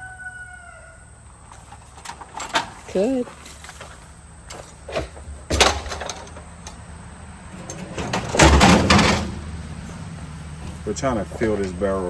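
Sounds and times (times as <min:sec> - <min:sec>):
scraping thump: 0:07.6 - 0:12.0.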